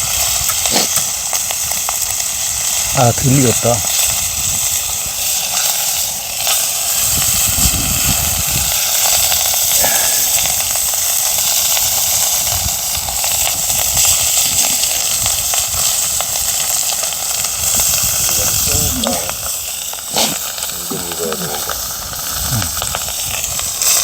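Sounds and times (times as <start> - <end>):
food sizzling on hot plate: 0.0 - 24.0
small crackles: 0.0 - 24.0.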